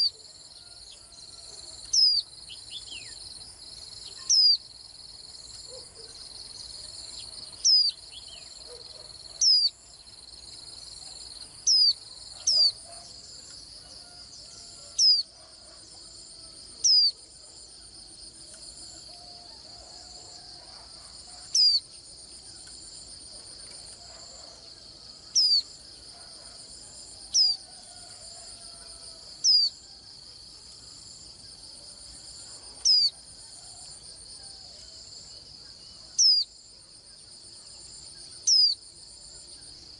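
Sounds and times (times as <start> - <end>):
insect-like trill: 25.3 - 25.8.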